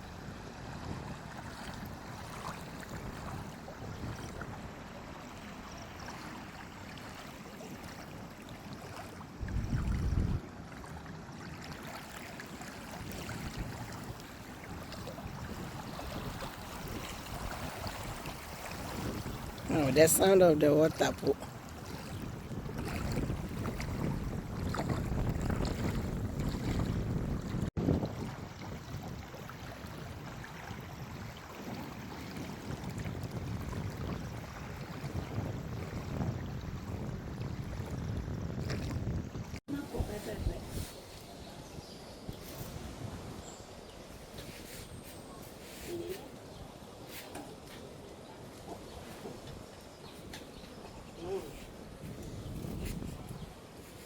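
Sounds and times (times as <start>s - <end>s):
wind rumbling on microphone: 0.0s - 54.0s
water rushing and splashing: 0.8s - 38.0s.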